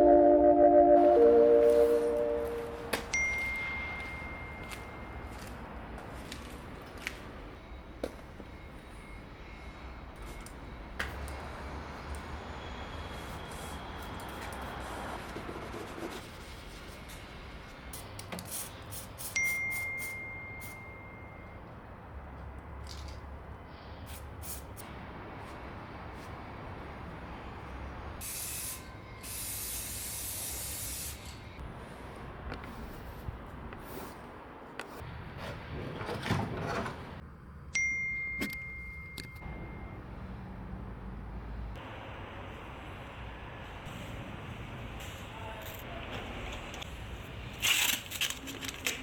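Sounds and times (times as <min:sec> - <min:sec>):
sharp ringing ding: 0:00.0 - 0:05.3, 0:19.4 - 0:21.6, 0:37.8 - 0:40.0.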